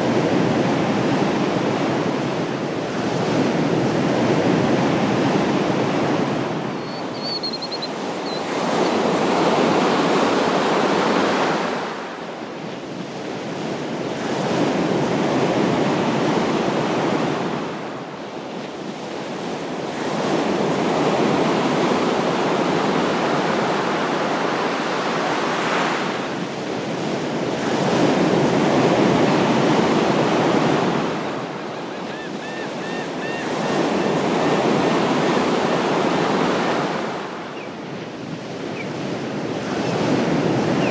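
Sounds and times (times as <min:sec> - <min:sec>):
ocean surf washing ashore: 0:00.0 - 0:40.9
faint high chirps: 0:06.8 - 0:08.5.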